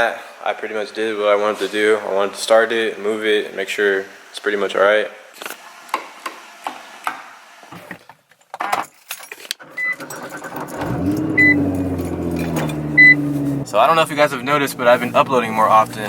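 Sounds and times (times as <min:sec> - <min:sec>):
car engine starting and running: 0:09.6 - 0:16.0
handling clicks and knocks in car: 0:10.1 - 0:13.7
car warning chime beeps: 0:11.3 - 0:11.8, 0:12.9 - 0:13.2.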